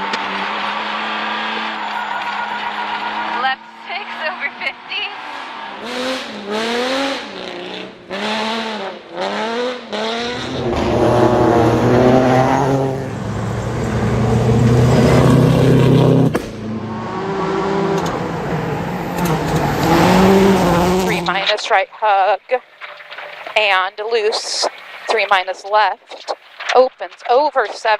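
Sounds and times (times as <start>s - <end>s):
car engine revving hard: 0.0s - 21.4s.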